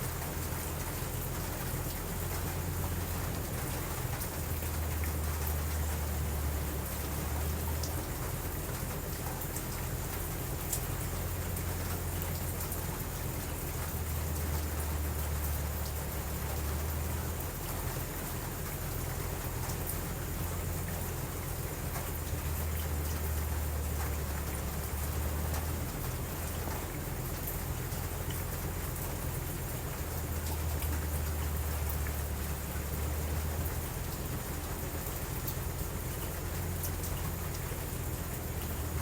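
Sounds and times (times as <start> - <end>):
low steady rumble: 0.0 - 39.0
steady rain: 0.0 - 39.0
faint ticks: 7.3 - 16.8, 17.6 - 39.0.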